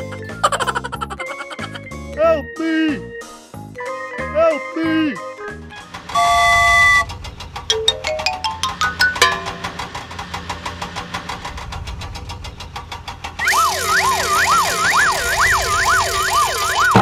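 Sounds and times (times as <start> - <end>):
wailing siren: 13.5 - 16.9.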